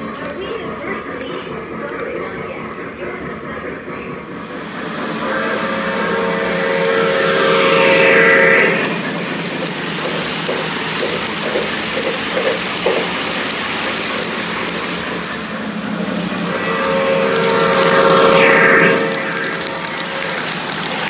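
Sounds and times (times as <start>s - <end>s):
model train running on track: 0.0s - 21.0s
model train whistle: 5.2s - 10.3s, 16.5s - 20.4s.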